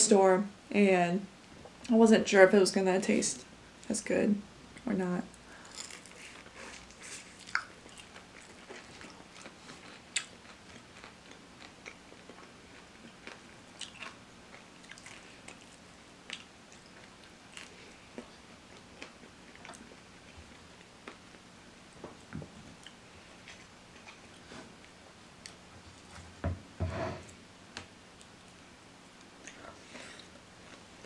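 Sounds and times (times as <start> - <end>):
chewing crispy fried chicken: 5.6 - 21.5.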